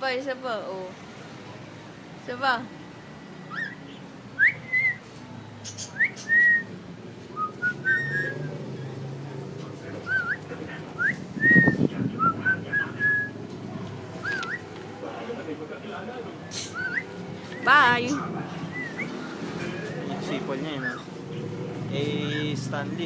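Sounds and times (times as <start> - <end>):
cockatiel whistling: 3.4 - 6.7, 7.3 - 8.6, 10.0 - 13.5, 14.2 - 14.8, 16.5 - 18.0, 18.6 - 21.2.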